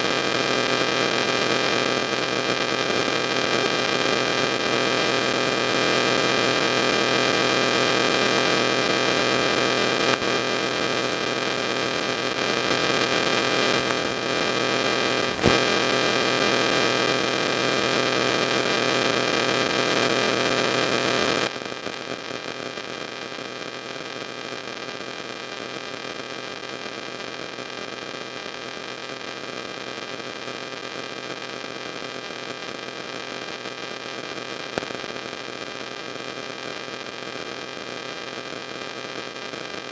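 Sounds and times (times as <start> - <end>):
electrical hiss and hum: 15.0 - 15.9
single click: 15.3 - 15.6.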